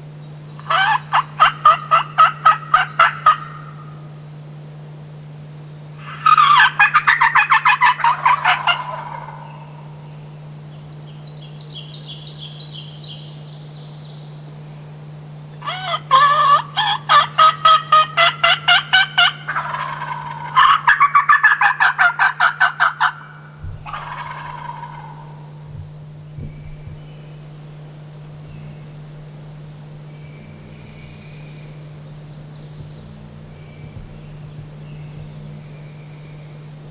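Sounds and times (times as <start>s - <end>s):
wild turkey yelping: 0.6s - 4.2s, 6.0s - 10.3s, 15.6s - 35.9s.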